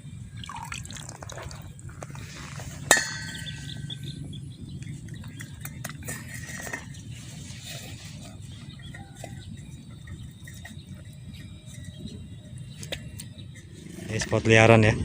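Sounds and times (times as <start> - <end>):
steady low hum: 0.0 - 15.0
sharp metallic clink: 2.8 - 4.2.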